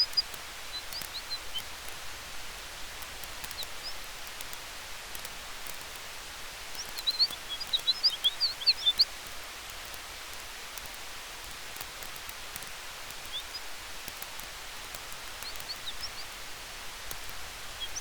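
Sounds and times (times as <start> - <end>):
fire crackles: 0.0 - 18.0
high chirps: 6.8 - 9.1.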